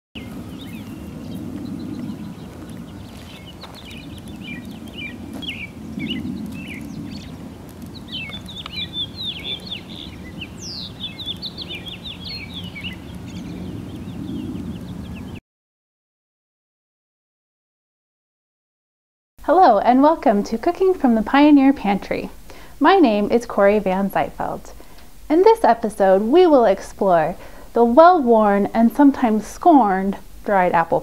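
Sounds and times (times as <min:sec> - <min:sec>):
small birds chirping: 0:00.2 - 0:15.4.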